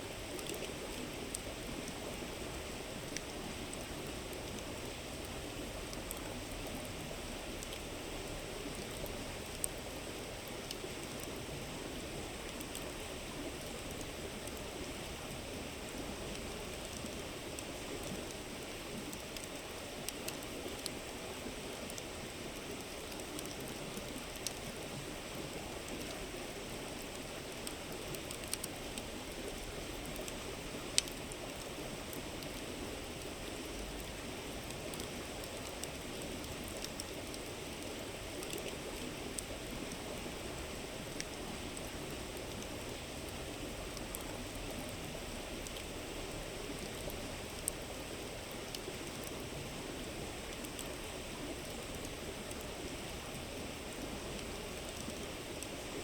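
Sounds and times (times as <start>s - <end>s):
campfire crackles: 0.0s - 56.0s.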